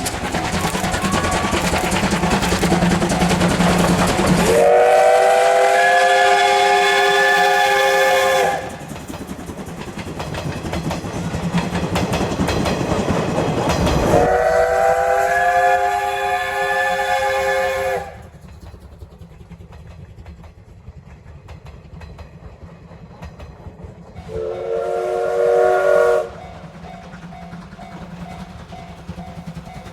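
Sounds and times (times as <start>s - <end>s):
train rumble and clatter: 0.0s - 29.9s
steam whistle blasts: 3.2s - 8.8s, 14.1s - 18.3s, 24.2s - 26.6s.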